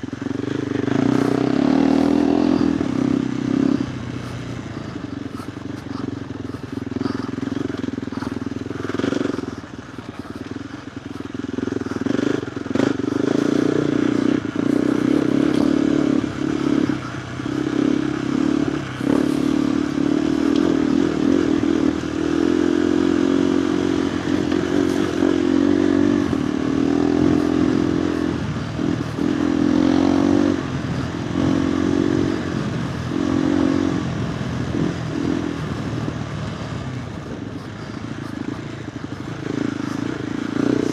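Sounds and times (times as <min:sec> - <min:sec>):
motorcycle engine revving: 0:00.0 - 0:40.9
clicks and knocks from trail: 0:05.2 - 0:13.7.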